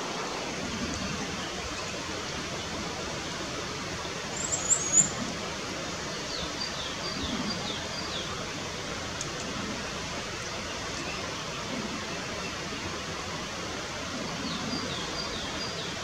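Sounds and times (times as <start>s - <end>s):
steady background hiss: 0.0s - 16.0s
birds calling: 4.2s - 5.3s.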